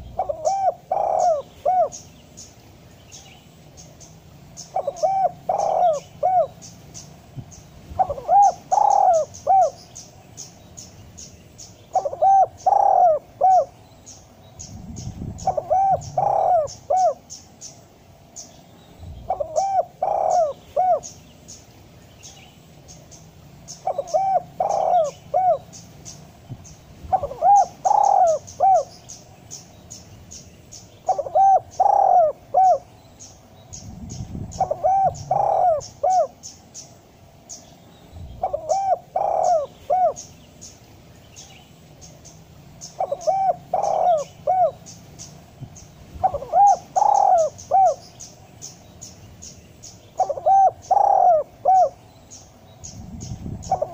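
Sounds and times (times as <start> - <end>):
dove cooing: 0.0 - 2.1, 4.6 - 6.8, 7.9 - 9.9, 11.9 - 17.5, 19.2 - 21.2, 23.7 - 26.0, 27.1 - 29.1, 31.0 - 32.9, 34.2 - 36.6, 38.4 - 40.3, 42.9 - 45.0, 46.2 - 48.2, 50.1 - 52.0, 53.3 - 53.9.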